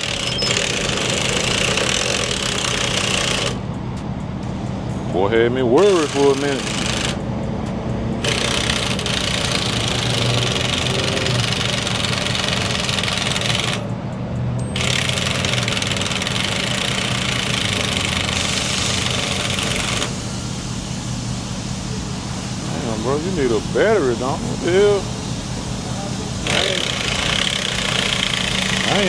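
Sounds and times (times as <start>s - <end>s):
impact wrench hammering: 0.0s - 3.6s, 5.8s - 7.2s, 8.2s - 13.9s, 14.7s - 20.1s, 26.4s - 29.0s.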